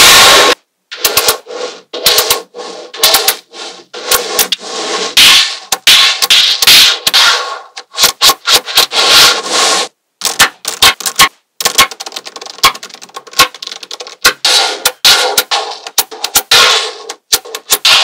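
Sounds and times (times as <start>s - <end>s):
magnetic balls clicking and rattling: 10.2s - 18.0s.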